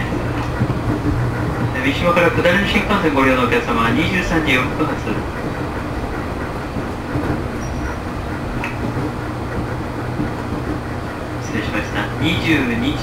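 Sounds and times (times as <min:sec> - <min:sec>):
electric train hum and rumble: 0:00.0 - 0:13.0.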